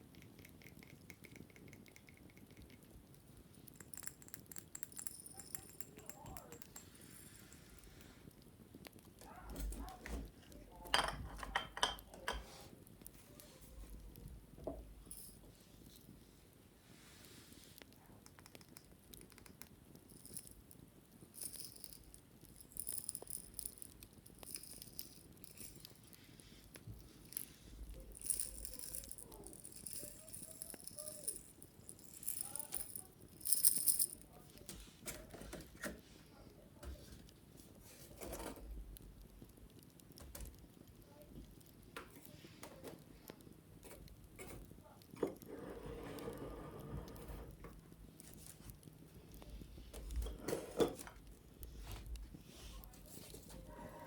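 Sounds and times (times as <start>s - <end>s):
scratching and rubbing: 21.3s - 36.2s, 43.8s - 54.0s
wicker rattling and clicking: 26.8s - 35.8s.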